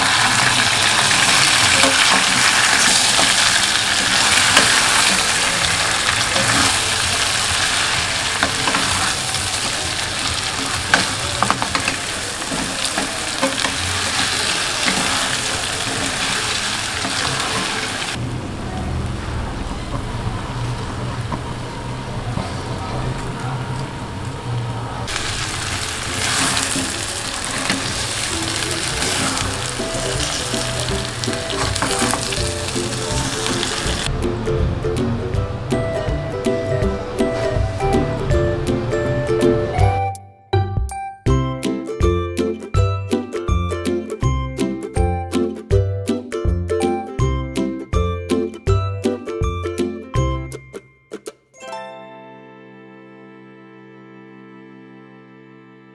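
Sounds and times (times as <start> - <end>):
meat sizzling in hot oil: 0.0 - 18.2, 25.1 - 34.1
spatula scraping and tapping pan: 10.5 - 16.3, 26.2 - 33.6.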